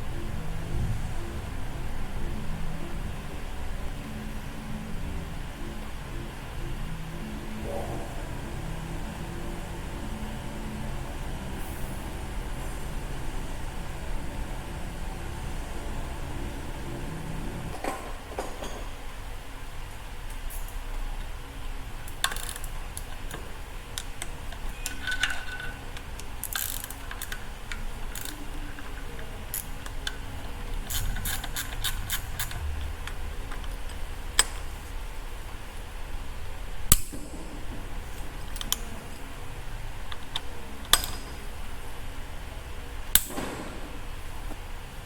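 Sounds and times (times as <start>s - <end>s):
steady low hum: 0.0s - 45.0s
tools and metal parts clinking: 24.5s - 27.4s.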